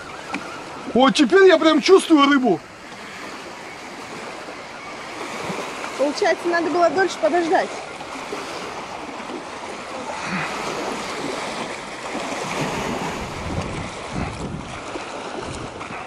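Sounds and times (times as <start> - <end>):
wind buffeting microphone: 8.3 - 16.0.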